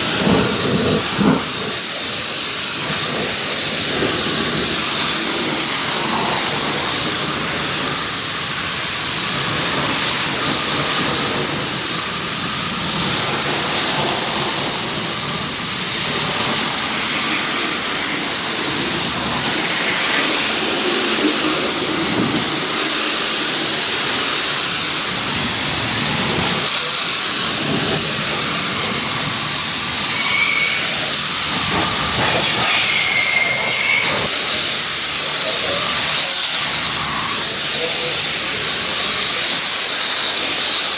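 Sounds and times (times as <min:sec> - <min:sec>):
pressure washer spraying: 0:00.0 - 0:40.9
high squeaks: 0:30.0 - 0:31.2, 0:31.8 - 0:34.3.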